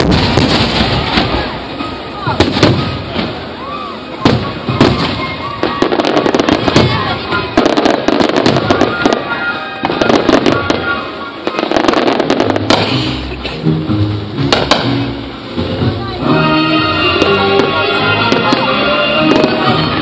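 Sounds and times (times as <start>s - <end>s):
fireworks bursting with bangs and crackles: 0.0s - 13.5s, 14.2s - 15.8s, 16.5s - 20.0s
music soundtrack: 10.3s - 20.0s.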